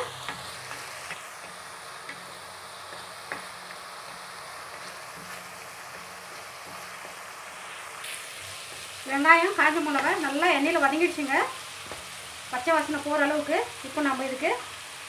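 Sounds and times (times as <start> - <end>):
sizzling in hot oil: 0.0 - 15.0
wooden spatula scrapes and taps: 0.1 - 7.2, 9.8 - 10.3, 11.8 - 12.1.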